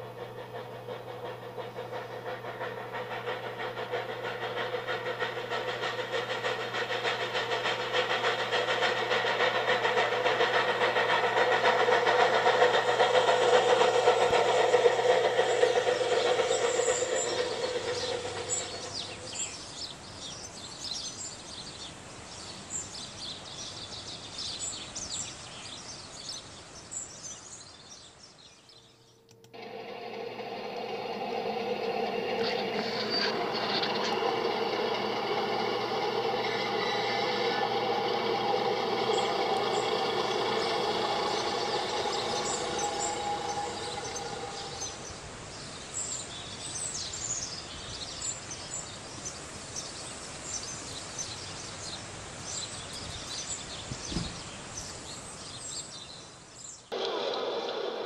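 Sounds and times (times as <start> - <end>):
birds chirping: 0.0 - 19.8, 30.0 - 45.9
train humming: 0.0 - 20.1, 29.2 - 46.2, 56.9 - 58.0.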